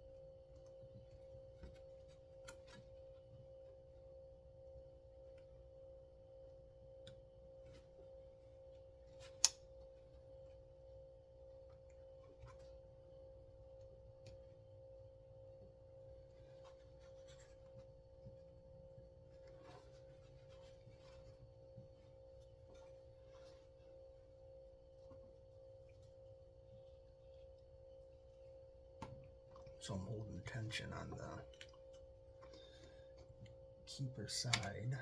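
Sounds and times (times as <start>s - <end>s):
steady background hum: 0.0s - 35.0s
small clicks and scrapes: 16.4s - 18.0s.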